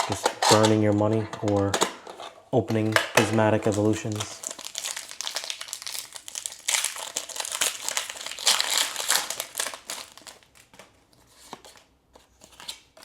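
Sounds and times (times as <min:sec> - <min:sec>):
foil wrapper crinkling: 0:03.2 - 0:10.8.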